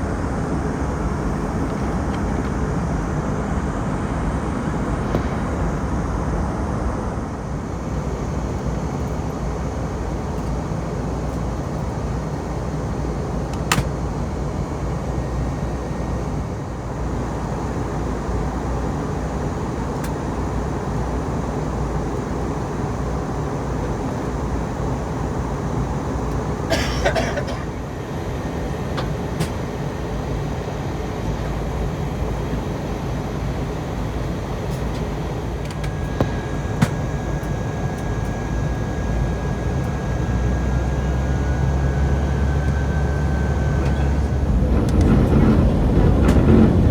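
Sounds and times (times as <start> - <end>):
airplane cabin rumble: 0.0 - 46.9
sharp click: 13.5 - 13.9.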